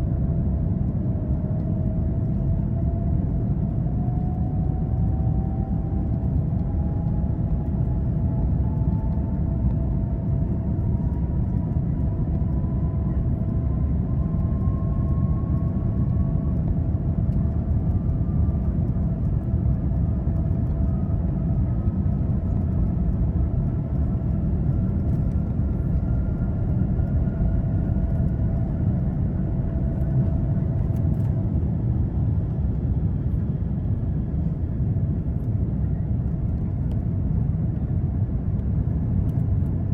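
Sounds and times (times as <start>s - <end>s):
aircraft cabin rumble: 0.0s - 39.9s.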